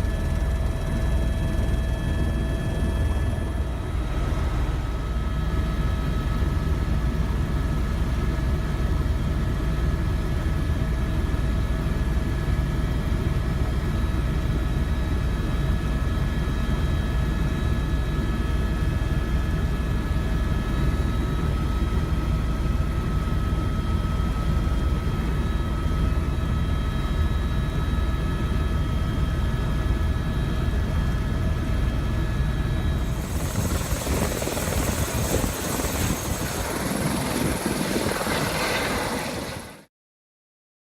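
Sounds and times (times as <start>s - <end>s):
turbine whine: 0.0s - 8.0s, 21.4s - 39.9s
helicopter rotor and engine rumble: 0.0s - 39.9s.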